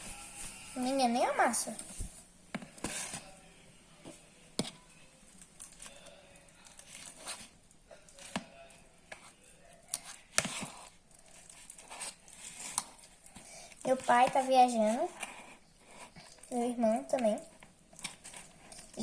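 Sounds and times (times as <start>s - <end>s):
fork scraping a dish: 2.8s - 3.4s, 9.1s - 14.4s, 15.0s - 16.5s.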